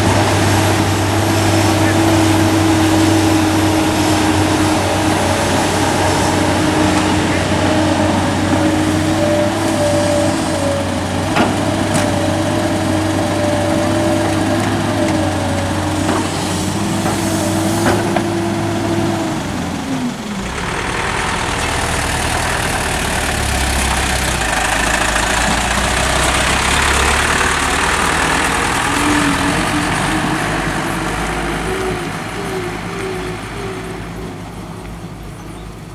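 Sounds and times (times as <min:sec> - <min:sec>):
heavy diesel machinery humming: 0:00.0 - 0:35.9
low diesel rumble with hiss: 0:00.0 - 0:35.9.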